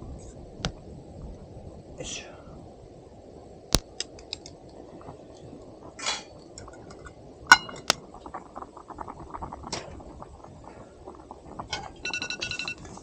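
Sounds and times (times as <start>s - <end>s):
metal pot clinking: 6.1s - 8.0s.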